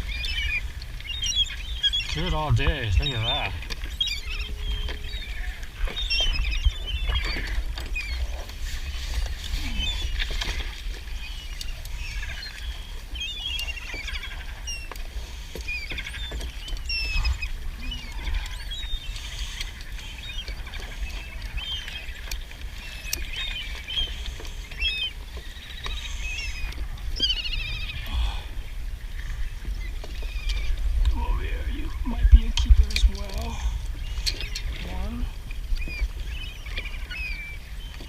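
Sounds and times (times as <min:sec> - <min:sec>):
birds squeaky calls: 0:00.0 - 0:09.0, 0:09.6 - 0:28.5, 0:29.1 - 0:38.0
wind rumble on microphone: 0:00.0 - 0:14.9, 0:26.2 - 0:38.0.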